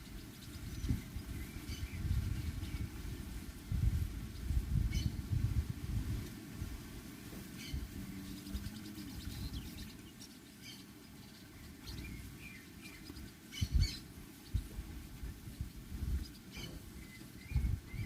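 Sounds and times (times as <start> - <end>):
small birds chirping: 0.0 - 6.4, 7.3 - 18.0
low rumbling thumps: 14.5 - 18.0.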